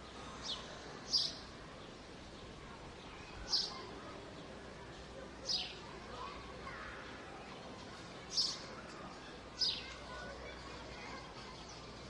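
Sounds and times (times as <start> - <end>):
bird chirping: 0.4 - 2.0.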